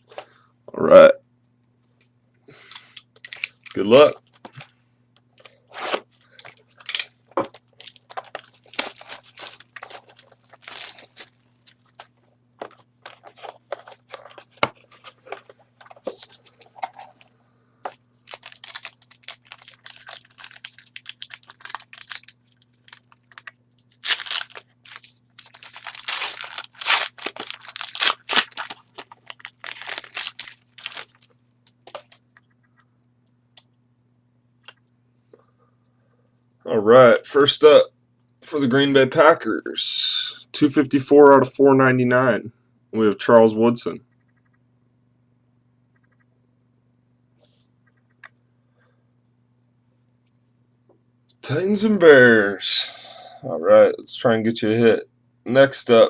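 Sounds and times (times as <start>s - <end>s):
wrapping tearing and crinkling: 2.6s - 4.8s, 5.4s - 17.3s, 18.1s - 32.3s.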